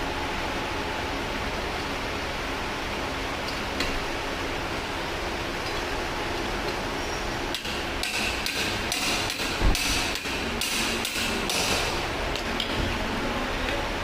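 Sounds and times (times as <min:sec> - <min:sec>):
hammering on metal: 0:07.6 - 0:12.0.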